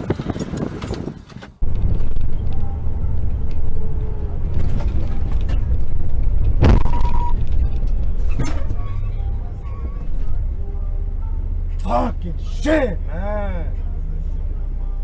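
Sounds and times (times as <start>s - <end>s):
car road rumble: 0.0s - 15.0s
sharp thump: 6.5s - 7.2s.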